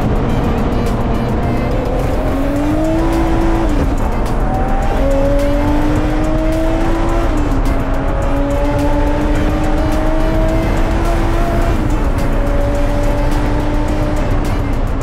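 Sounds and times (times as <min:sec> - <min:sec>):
race car engine accelerating: 0:00.0 - 0:15.0.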